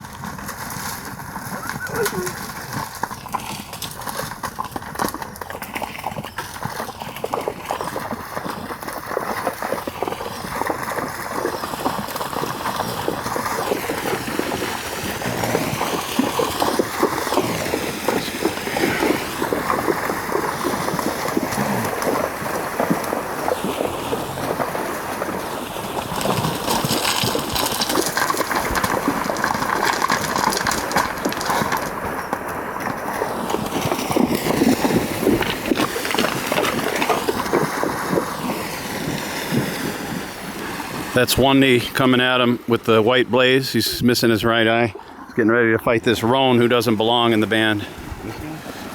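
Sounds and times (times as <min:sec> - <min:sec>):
hooves splashing in water: 0:00.0 - 0:48.9
river water rushing: 0:09.0 - 0:41.8.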